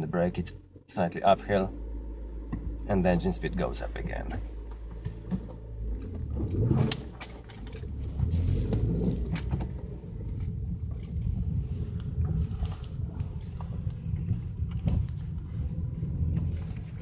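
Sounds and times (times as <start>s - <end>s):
car engine idling: 0.0s - 17.0s
light clicks and rattles: 16.2s - 17.0s.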